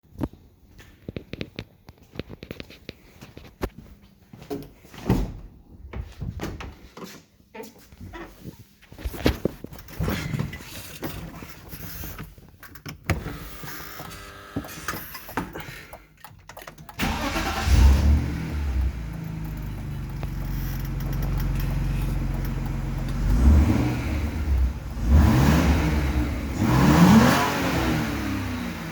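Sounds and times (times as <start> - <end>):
low engine rumble: 17.0 - 26.7
exhaust pops and crackles: 17.0 - 27.4.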